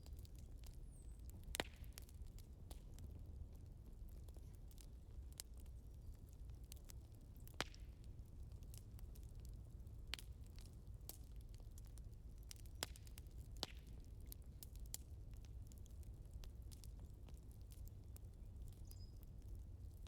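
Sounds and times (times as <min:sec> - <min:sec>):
firewood crackling: 0:00.0 - 0:20.0.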